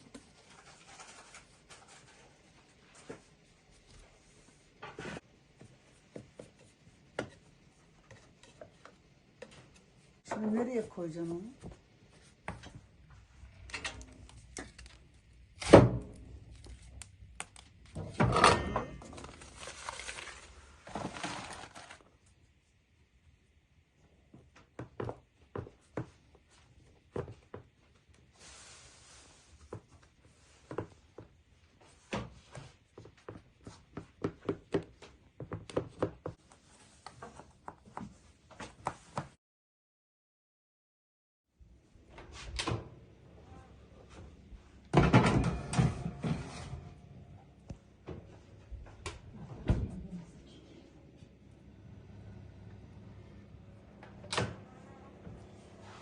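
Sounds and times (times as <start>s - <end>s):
objects clattering: 17.9s - 22.0s, 44.9s - 47.1s
rustling: 19.1s - 22.0s.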